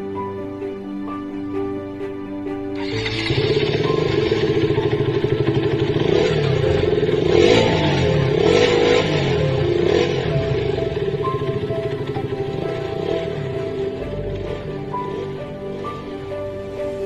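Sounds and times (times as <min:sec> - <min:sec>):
motorcycle engine revving: 0:02.8 - 0:16.3.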